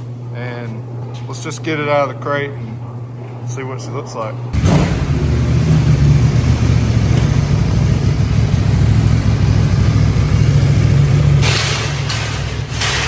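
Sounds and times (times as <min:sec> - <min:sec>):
engine running steadily: 0:04.5 - 0:13.0.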